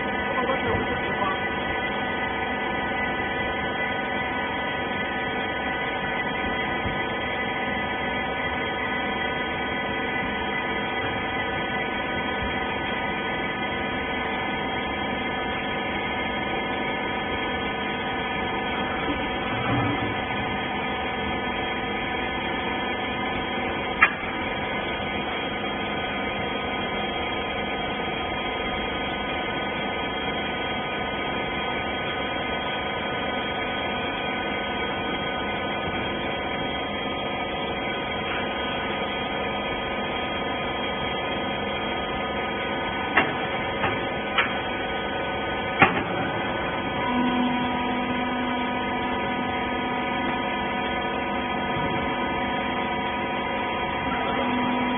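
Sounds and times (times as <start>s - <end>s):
baler motor humming: 0.0s - 54.9s
low tone: 45.8s - 54.9s.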